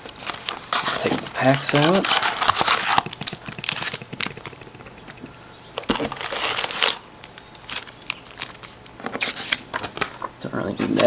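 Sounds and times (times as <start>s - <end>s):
wrappers crinkling and rustling: 0.0s - 2.8s, 5.9s - 10.3s.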